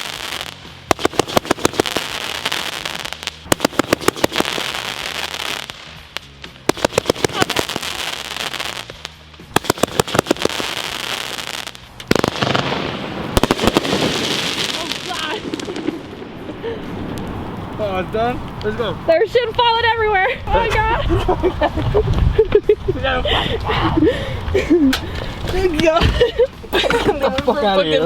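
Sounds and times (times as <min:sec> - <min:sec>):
firework crackling pops: 0:00.0 - 0:17.7
firework hiss: 0:00.0 - 0:18.7.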